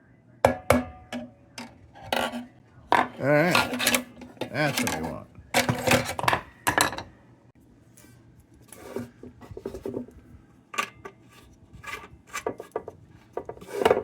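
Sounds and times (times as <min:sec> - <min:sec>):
metal clinks and scrapes: 0:02.0 - 0:07.0.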